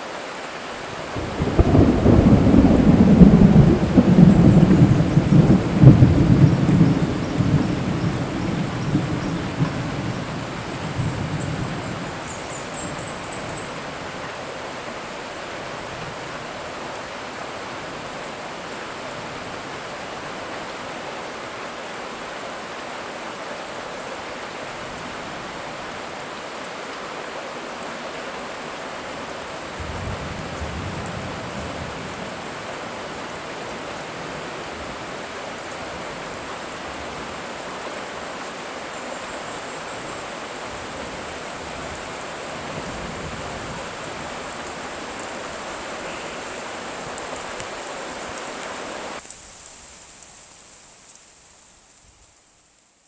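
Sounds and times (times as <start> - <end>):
rain falling: 0.0 - 53.0
thunder rumble: 1.1 - 13.6.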